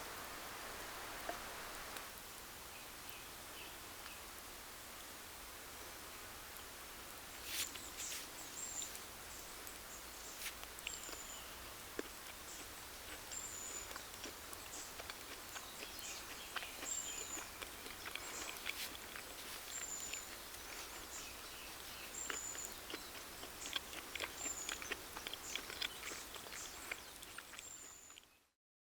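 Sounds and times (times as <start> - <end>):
campfire crackling: 0.0 - 2.3, 4.0 - 27.8
outdoor hiss: 0.0 - 15.5.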